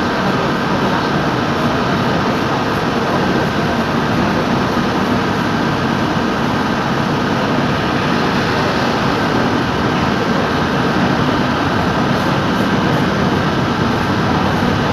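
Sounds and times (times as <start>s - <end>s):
faint steady whine: 0.0s - 14.9s
freight train rumbling past: 0.0s - 14.9s.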